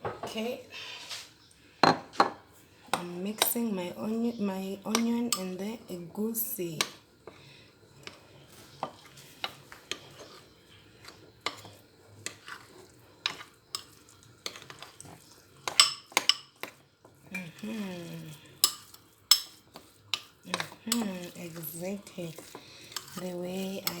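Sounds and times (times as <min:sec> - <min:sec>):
spoon clicking against dish: 0:04.9 - 0:05.5, 0:18.6 - 0:21.2
spoon squelching in thick paste: 0:07.3 - 0:24.0.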